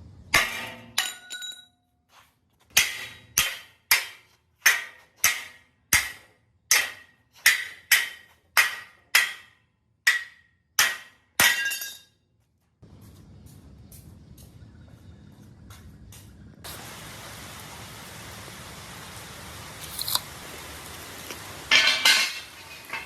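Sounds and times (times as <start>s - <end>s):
hammer striking metal: 10.1s - 11.8s.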